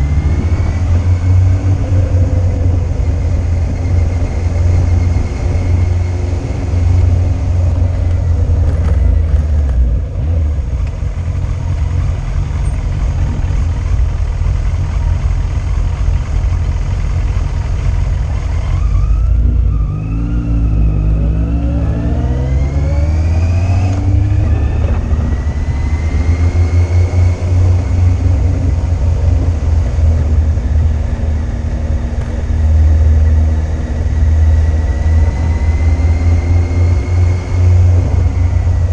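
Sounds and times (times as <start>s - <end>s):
wind rumble on microphone: 0.0s - 11.3s, 21.9s - 38.9s
motorcycle engine accelerating: 0.0s - 38.9s.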